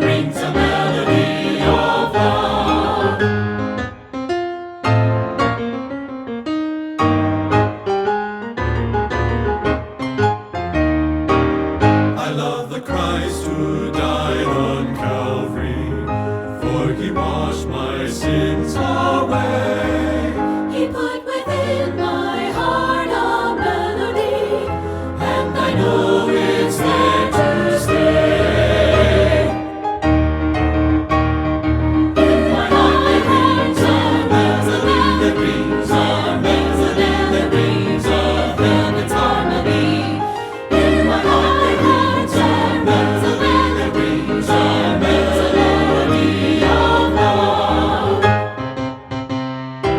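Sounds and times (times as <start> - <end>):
choir singing gospel: 0.0 - 3.8, 12.0 - 29.9, 32.1 - 48.8.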